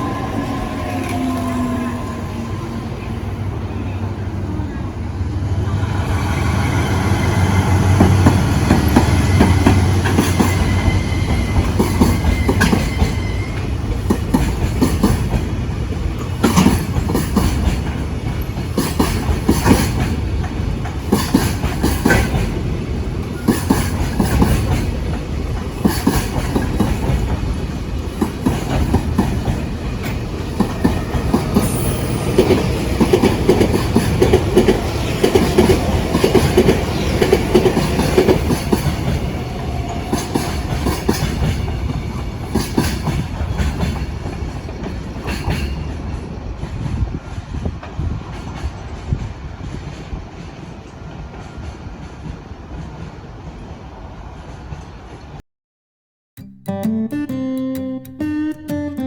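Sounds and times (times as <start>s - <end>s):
locomotive hum: 0.0s - 46.6s
train wheels clattering over rail joints: 7.9s - 53.2s.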